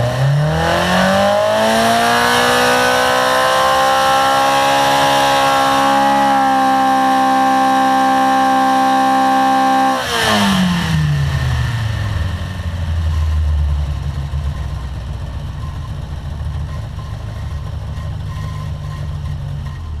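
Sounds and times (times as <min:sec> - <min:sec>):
race engine at high revs: 0:00.0 - 0:13.1.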